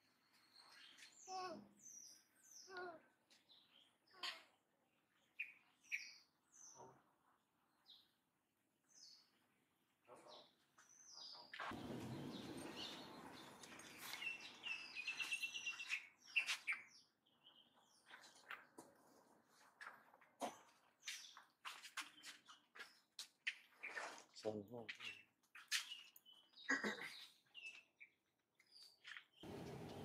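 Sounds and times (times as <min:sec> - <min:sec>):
bird chirps: 0:11.0 - 0:18.6.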